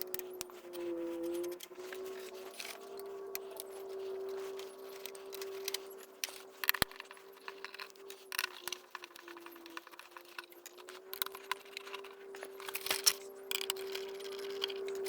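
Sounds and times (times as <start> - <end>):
screwdriver and screws clinking: 4.4 - 15.0.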